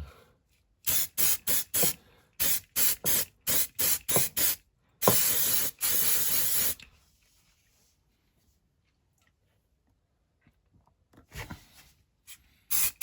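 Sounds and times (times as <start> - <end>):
aerosol can spraying: 0.9 - 6.8, 12.7 - 13.0.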